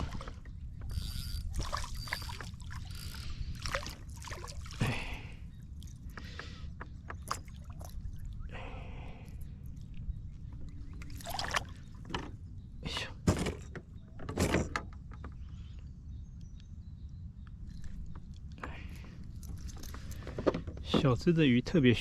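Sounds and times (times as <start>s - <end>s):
water splashing: 1.4s - 6.0s, 11.0s - 12.0s.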